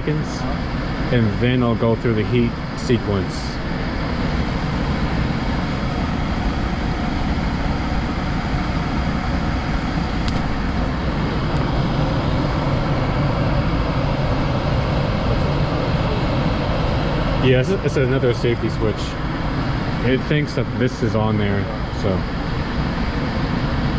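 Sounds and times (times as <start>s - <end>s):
furnace blower fan running: 0.0s - 23.9s.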